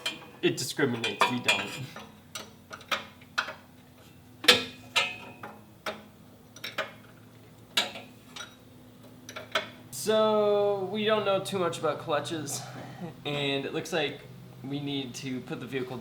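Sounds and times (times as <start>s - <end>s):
hand tools clinking on metal: 0.9s - 2.1s.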